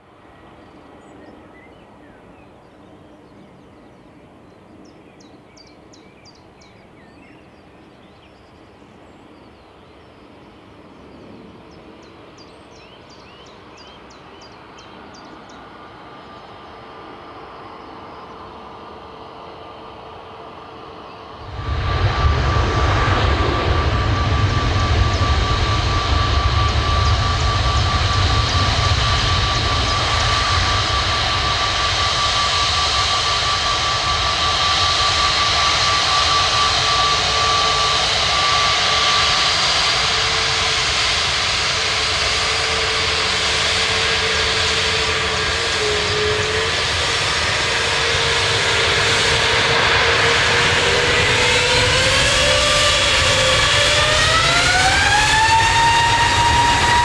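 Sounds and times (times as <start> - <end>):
jet engines at takeoff power: 0.0 - 57.0.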